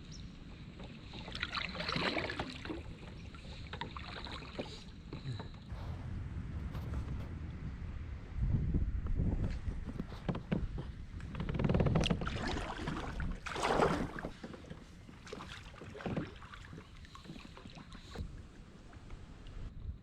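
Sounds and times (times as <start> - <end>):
paddle strokes splashing water: 0.4 - 5.7, 9.6 - 19.7
wind rumble on microphone: 5.2 - 20.0.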